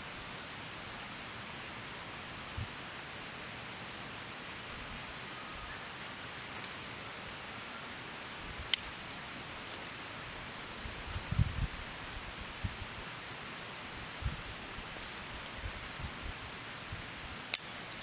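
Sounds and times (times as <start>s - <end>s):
soft outdoor hiss: 0.0s - 18.0s
burning wood crack: 17.2s - 18.0s.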